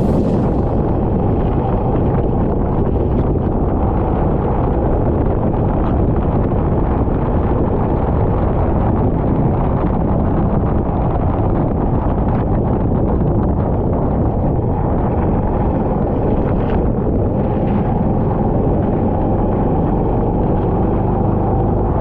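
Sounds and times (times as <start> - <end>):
wind buffeting microphone: 0.0 - 22.0
kart engine running: 14.4 - 22.0.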